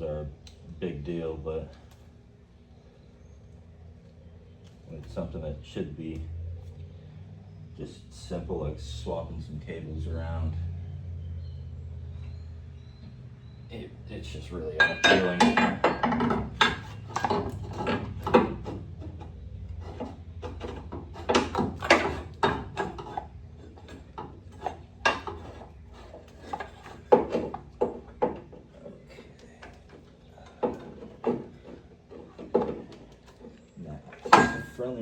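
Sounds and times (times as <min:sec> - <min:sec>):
hand tools clinking on metal: 0:14.6 - 0:19.2, 0:19.9 - 0:27.6, 0:34.2 - 0:34.9.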